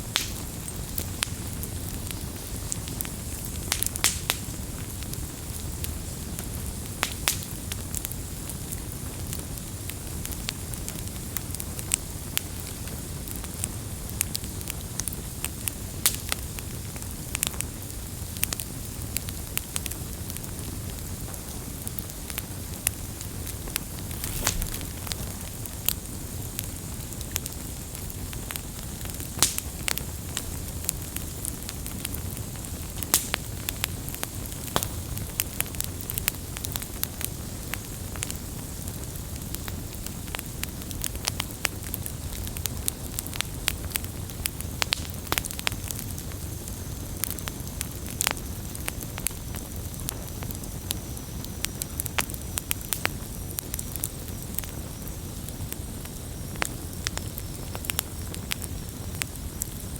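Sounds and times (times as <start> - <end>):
low rush of flames: 0.0 - 9.6, 20.0 - 59.9
wood fire crackling: 0.0 - 59.9
sharp pops and snaps: 0.1 - 4.5, 7.0 - 7.6, 22.8 - 26.1, 29.4 - 29.9, 33.0 - 35.4.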